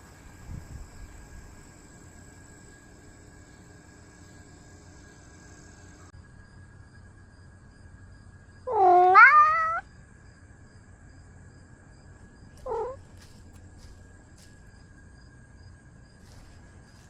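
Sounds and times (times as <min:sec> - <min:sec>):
cat meowing: 0:08.7 - 0:09.8, 0:12.6 - 0:13.0.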